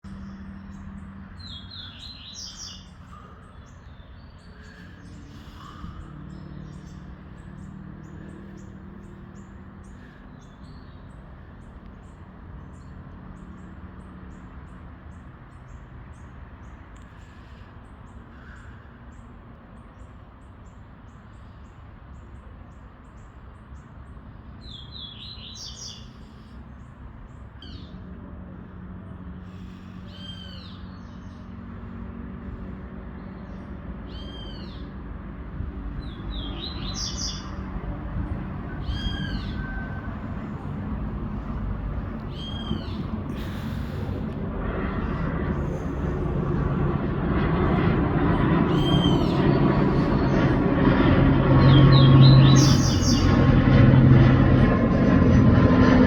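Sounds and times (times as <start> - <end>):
steady low hum: 0.0 - 13.8, 26.1 - 56.0
birds chirping: 0.0 - 20.0, 33.2 - 35.0, 35.8 - 50.8, 51.5 - 53.6.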